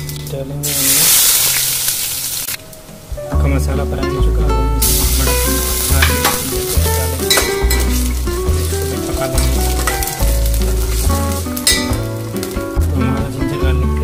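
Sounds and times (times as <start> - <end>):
onion sizzling in hot oil: 0.0 - 2.6, 4.8 - 12.9
background music with bass line: 0.0 - 14.0.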